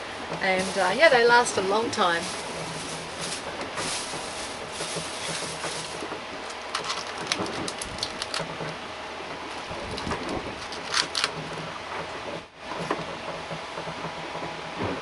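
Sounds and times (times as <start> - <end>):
steady hiss: 0.0 - 6.8
plastic packaging crinkling: 0.6 - 8.5
short crackles and clicks: 2.3 - 8.8, 9.4 - 12.2.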